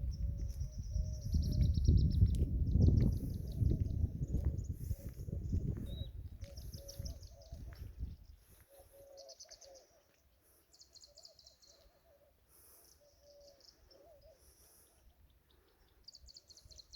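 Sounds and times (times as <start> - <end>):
birds chirping and whistling: 0.0 - 10.0.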